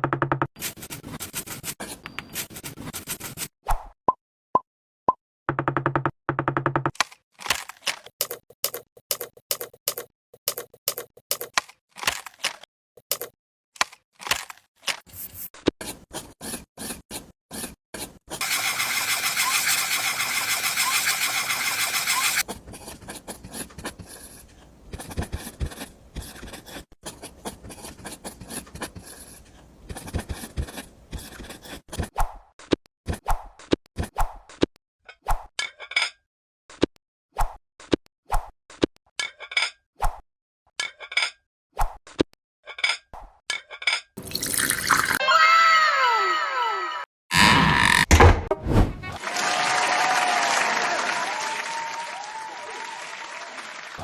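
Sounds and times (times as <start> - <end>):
steady noisy tool sound: 18.4 - 22.4.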